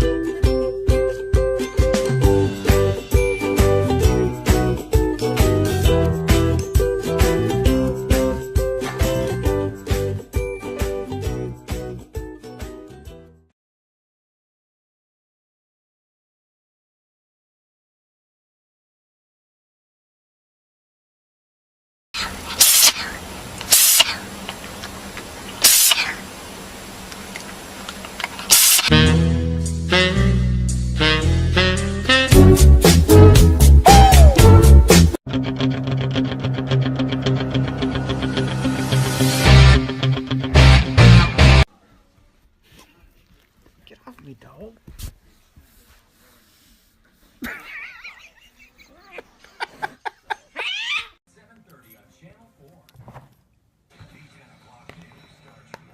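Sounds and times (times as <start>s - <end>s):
cat hissing: 22.2s - 24.3s, 25.6s - 26.3s
cat meowing: 50.6s - 51.2s.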